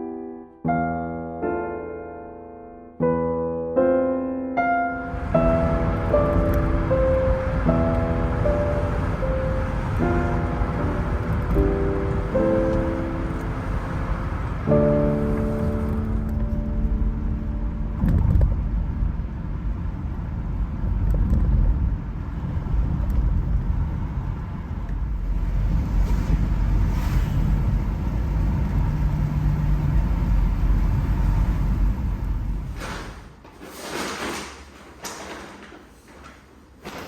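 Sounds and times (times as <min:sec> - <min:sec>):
piano chord: 0:00.0 - 0:20.3
car engine rumble: 0:05.0 - 0:33.3
tyres on road: 0:05.0 - 0:33.5.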